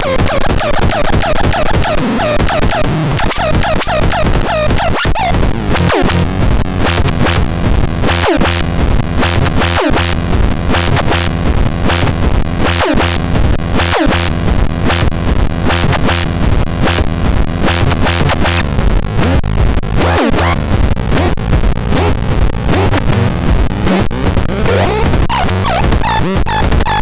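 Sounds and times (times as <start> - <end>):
experimental synthesizer music: 0.0 - 27.0
falling pitch sweep: 5.6 - 6.4.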